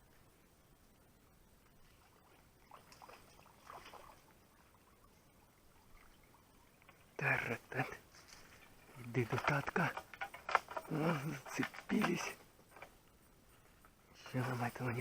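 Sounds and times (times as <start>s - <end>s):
faint splashing in water: 0.0s - 15.0s
man's voice: 7.2s - 8.0s, 8.9s - 10.0s, 10.8s - 12.4s, 14.2s - 15.0s.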